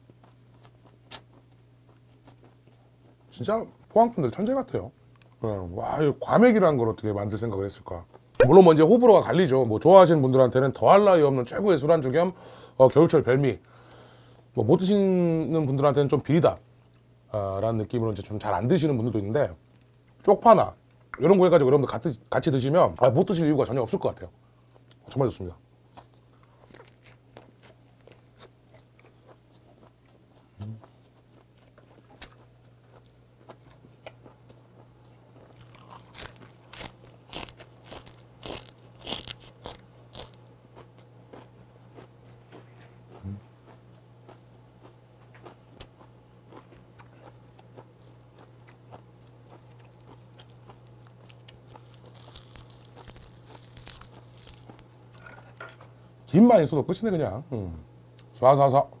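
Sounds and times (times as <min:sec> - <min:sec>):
chewing and crunching food: 0:00.0 - 0:05.4, 0:24.6 - 0:25.1, 0:25.9 - 0:56.0.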